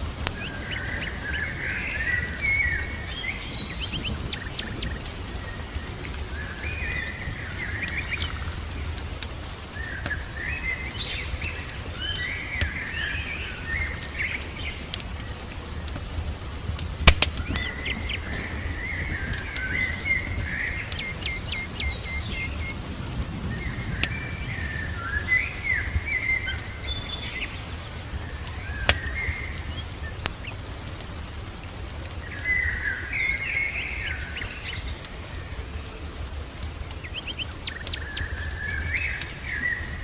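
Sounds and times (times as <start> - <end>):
songbirds chirping: 0.0 - 40.0
wood fire crackling: 0.0 - 40.0
low rumble: 21.6 - 26.8.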